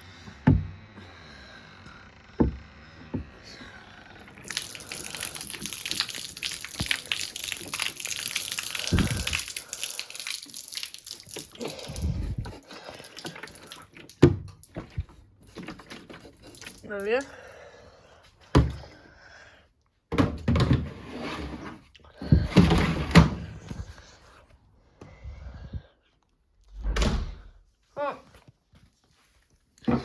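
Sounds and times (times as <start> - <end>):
water pouring from container: 4.2 - 17.4.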